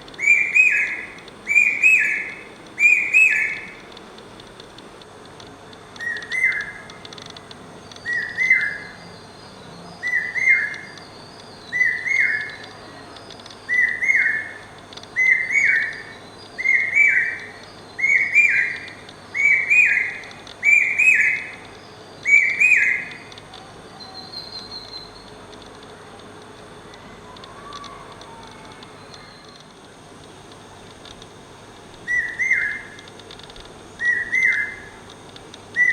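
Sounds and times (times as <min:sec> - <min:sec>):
small birds chirping: 0:00.0 - 0:03.8, 0:07.8 - 0:25.4, 0:31.9 - 0:35.9.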